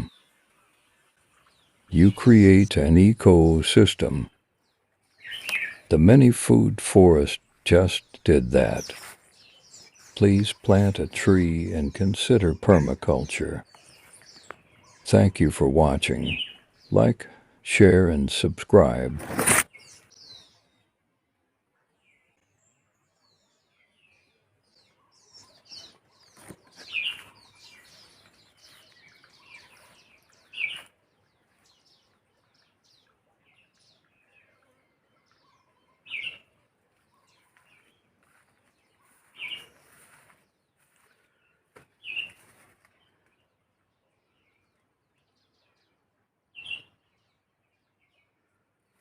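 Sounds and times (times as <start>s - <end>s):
bird twittering chirps: 4.6s - 5.9s, 16.1s - 17.0s, 23.2s - 40.2s, 40.8s - 42.4s, 46.5s - 48.3s.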